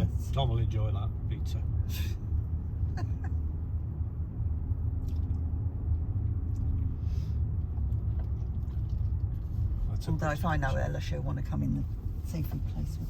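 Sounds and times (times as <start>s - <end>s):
engine and road rumble in car: 0.0s - 13.0s.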